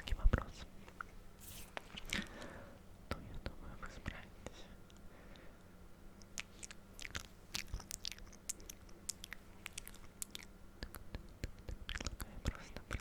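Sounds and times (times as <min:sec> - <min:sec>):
faint low hum: 0:00.0 - 0:13.0
wet mouth clicks and smacks: 0:06.2 - 0:12.3.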